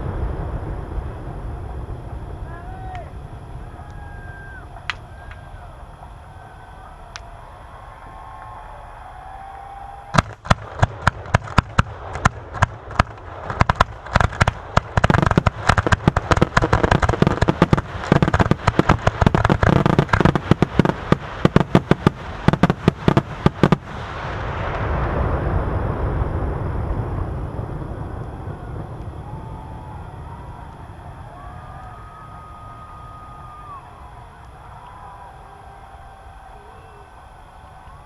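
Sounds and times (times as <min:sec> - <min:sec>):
fireworks bursts: 0:09.8 - 0:33.7.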